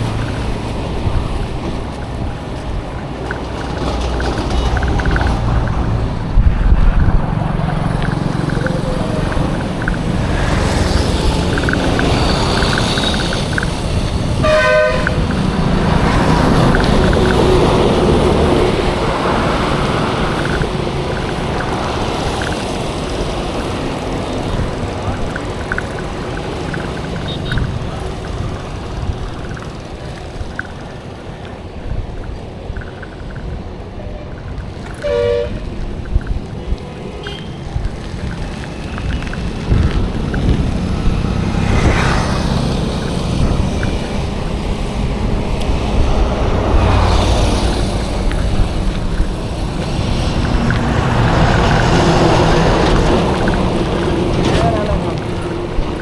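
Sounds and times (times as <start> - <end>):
engine passing close by: 0.0 - 31.1, 37.1 - 56.0
road traffic noise: 0.0 - 56.0
vehicle horn: 14.4 - 15.2, 27.2 - 27.6, 35.0 - 35.7, 37.2 - 37.6.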